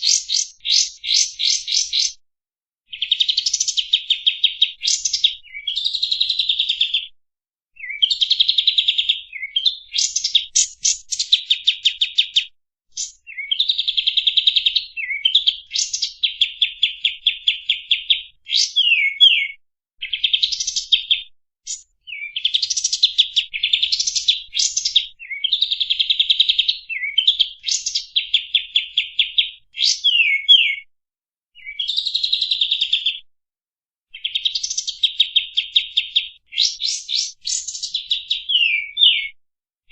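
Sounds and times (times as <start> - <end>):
songbird chattering and trilling: 0.0 - 2.2, 2.9 - 7.0, 7.8 - 30.8, 34.2 - 39.3.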